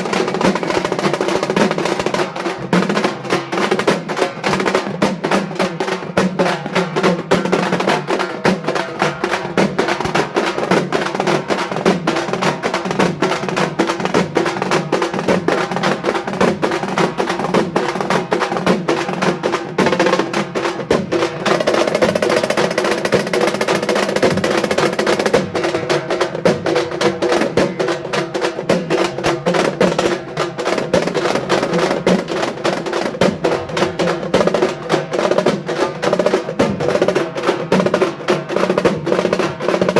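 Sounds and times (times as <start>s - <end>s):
frame drums played with sticks: 0.0s - 39.9s.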